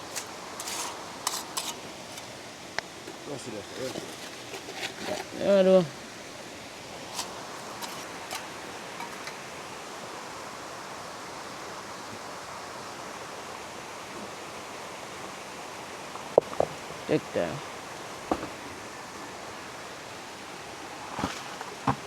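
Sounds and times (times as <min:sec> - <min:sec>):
river flowing: 0:00.0 - 0:22.0
sharp knocks: 0:18.3 - 0:18.6.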